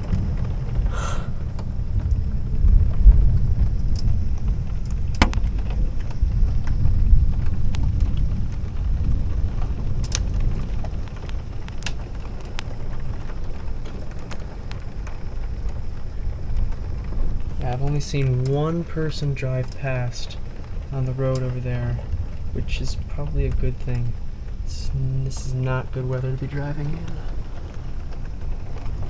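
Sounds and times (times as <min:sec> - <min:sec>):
heavy rain ticking on window: 0:00.0 - 0:29.0
thunder rumbling: 0:00.0 - 0:29.0.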